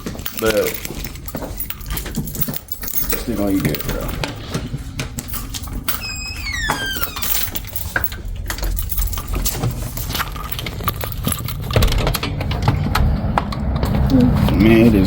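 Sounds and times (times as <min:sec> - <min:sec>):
keys jangling: 0:00.0 - 0:12.7
short high squeak: 0:06.0 - 0:07.4.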